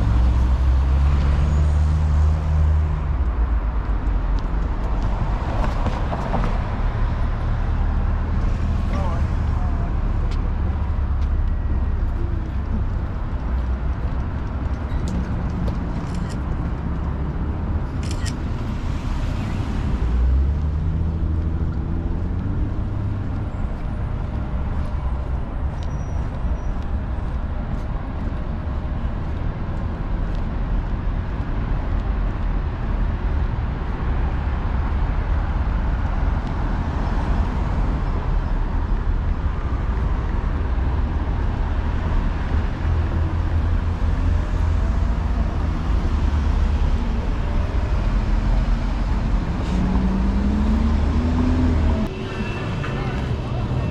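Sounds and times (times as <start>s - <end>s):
traffic rumble: 0.0s - 53.9s
engine hum passing: 39.6s - 53.9s.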